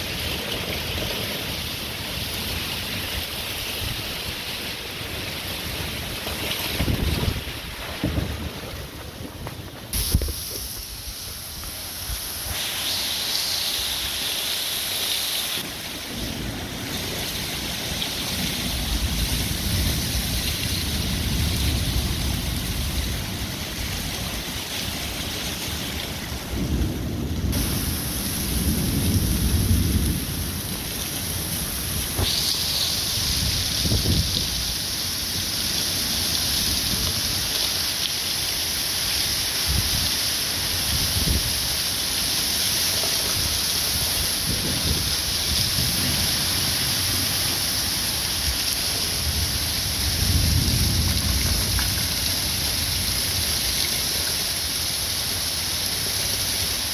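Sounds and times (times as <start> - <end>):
heavy rain hissing: 0.0 - 56.9
thunder rumbling: 5.2 - 11.1, 16.0 - 24.6, 26.2 - 35.5, 44.1 - 47.4, 48.9 - 53.4.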